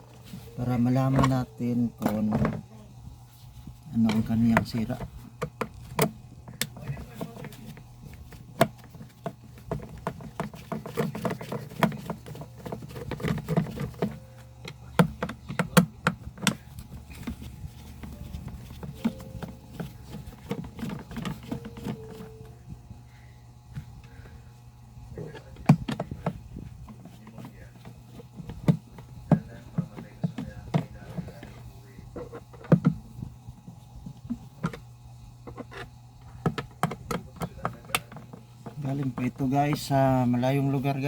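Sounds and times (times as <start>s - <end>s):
steady low hum: 0.0s - 41.0s
tool knocking on plastic casing: 4.0s - 22.4s, 25.4s - 33.0s, 33.6s - 34.8s, 35.4s - 40.2s.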